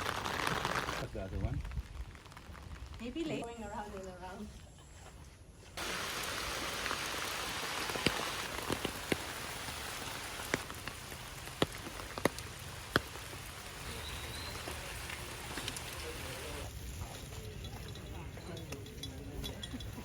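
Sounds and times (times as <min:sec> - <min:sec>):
heavy raindrops tapping: 0:00.0 - 0:03.2, 0:05.8 - 0:16.7
steady rain falling: 0:00.0 - 0:04.0, 0:05.8 - 0:18.4.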